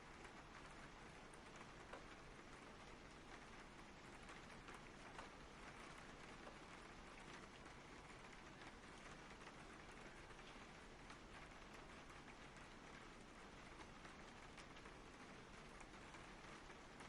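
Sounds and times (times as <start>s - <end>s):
soft steady rain: 0.0s - 17.0s.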